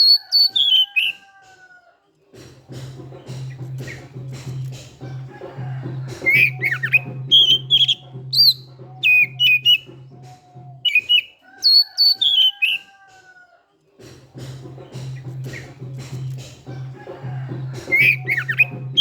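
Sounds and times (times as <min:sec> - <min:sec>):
bird singing whistled notes: 0:00.0 - 0:01.2, 0:06.2 - 0:12.8, 0:17.8 - 0:19.0
background music with steady beat: 0:00.0 - 0:19.0.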